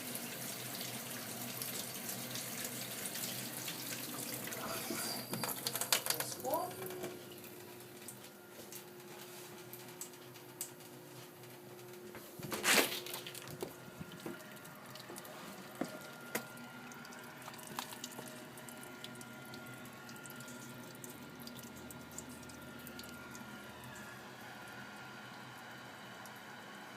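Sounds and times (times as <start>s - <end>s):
water running and dripping: 0.0s - 9.0s, 13.0s - 23.5s.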